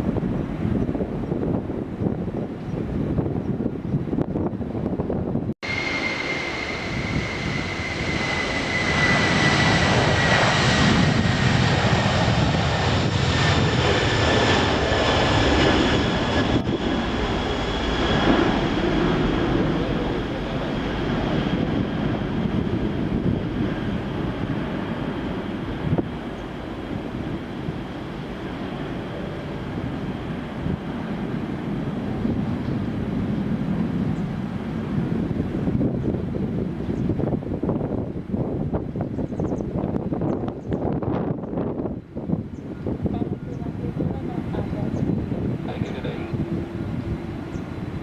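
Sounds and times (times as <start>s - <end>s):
jet airliner taking off: 0.0s - 48.0s
high engine whine: 5.6s - 30.6s.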